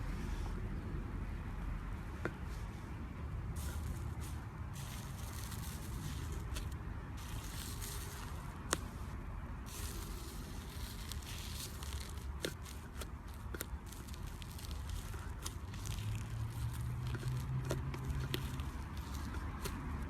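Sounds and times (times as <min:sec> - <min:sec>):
slime squishing and crackling: 0:03.6 - 0:09.1, 0:09.7 - 0:20.0.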